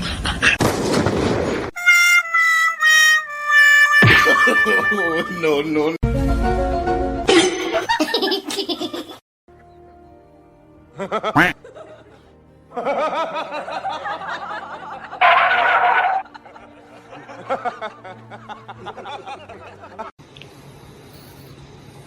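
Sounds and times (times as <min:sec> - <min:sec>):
background music: 0:01.8 - 0:20.1
people laughing and snickering: 0:07.3 - 0:09.2, 0:11.0 - 0:20.1.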